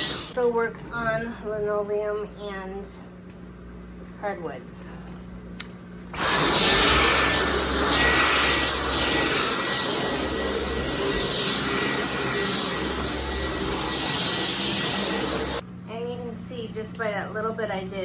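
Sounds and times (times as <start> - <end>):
vacuum cleaner running: 0.0 - 0.8, 6.1 - 15.6.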